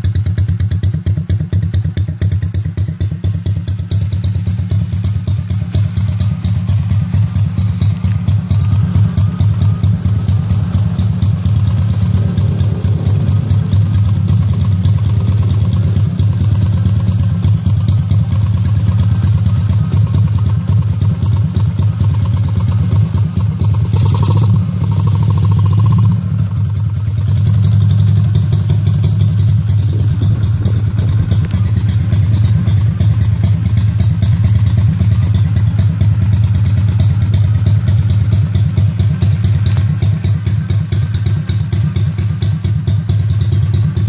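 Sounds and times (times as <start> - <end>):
motorcycle engine idling: 0.0 - 44.0.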